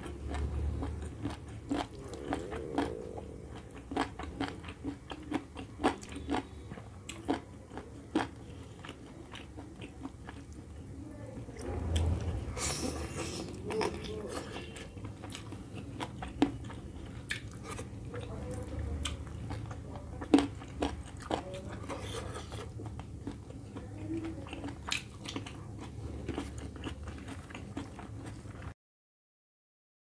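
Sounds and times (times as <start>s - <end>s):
low steady hum: 0.0s - 28.7s
wet chewing smacks and clicks: 13.2s - 18.4s, 19.0s - 28.7s.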